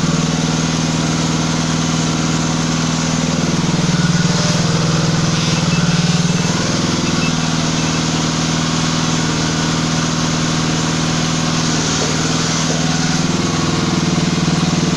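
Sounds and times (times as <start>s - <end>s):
hydraulic pump motor humming: 0.0s - 14.9s.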